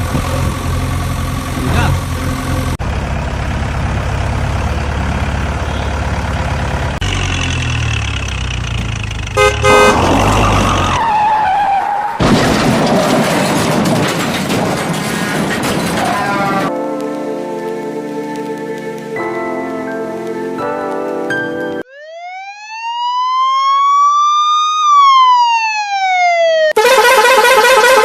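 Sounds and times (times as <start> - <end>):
vehicle engine running: 0.0 - 10.8
horn honk: 5.6 - 6.2, 9.3 - 11.1, 26.8 - 28.0.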